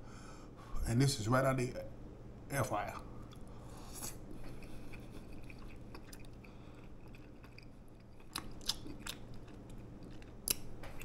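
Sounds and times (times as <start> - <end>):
person chewing food: 3.2 - 11.0.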